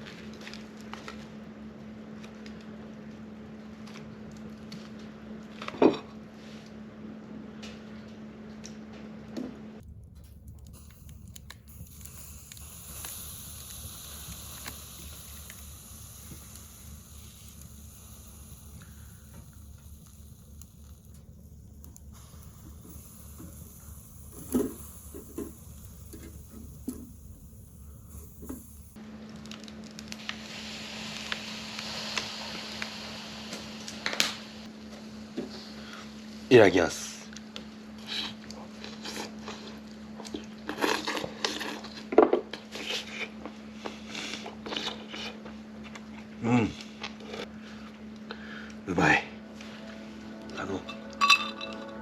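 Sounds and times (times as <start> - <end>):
food sizzling on a grill: 10.7 - 29.0, 30.2 - 34.7.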